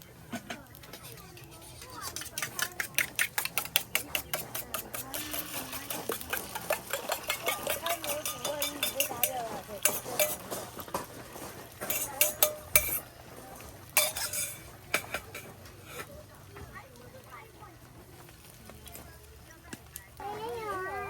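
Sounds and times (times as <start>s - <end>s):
cutlery clinking on dishes: 0.3s - 16.1s.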